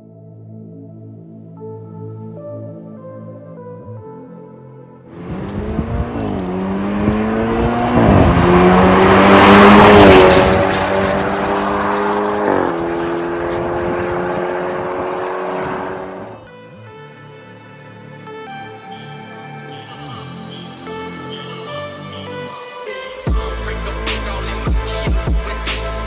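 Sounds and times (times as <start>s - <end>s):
car engine accelerating hard: 5.1s - 16.5s.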